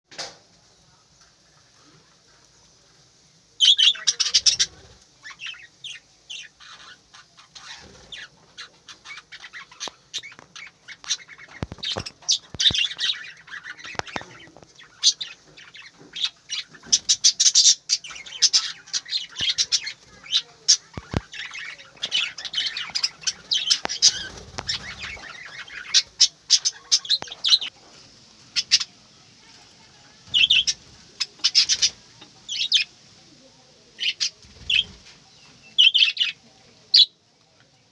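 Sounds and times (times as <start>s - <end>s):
budgerigars chirping and squawking: 3.6s - 27.7s, 28.4s - 28.9s, 30.3s - 32.9s, 34.0s - 37.1s.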